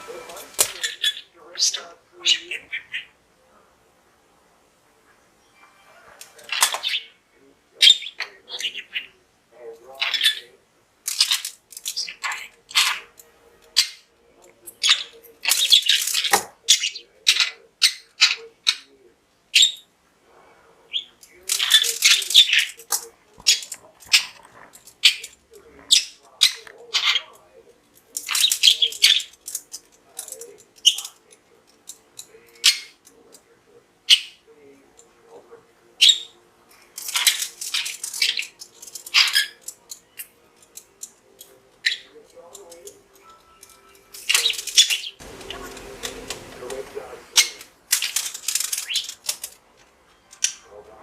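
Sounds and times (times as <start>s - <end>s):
budgerigar chirping and chattering: 0.4s - 3.2s, 6.4s - 7.2s, 7.8s - 9.2s, 10.0s - 10.5s, 11.1s - 13.2s, 13.8s - 14.1s, 14.7s - 18.9s, 19.5s - 19.9s, 20.9s - 22.8s, 23.4s - 27.4s, 28.2s - 29.4s, 32.4s - 33.0s, 34.0s - 34.5s, 36.0s - 36.4s, 37.1s - 40.4s, 41.8s - 42.2s, 44.3s - 46.2s, 47.3s - 49.2s
budgerigar chattering: 0.6s - 3.2s, 7.8s - 9.2s, 10.0s - 10.5s, 14.8s - 18.9s, 25.0s - 27.4s, 34.1s - 34.4s, 36.0s - 36.4s.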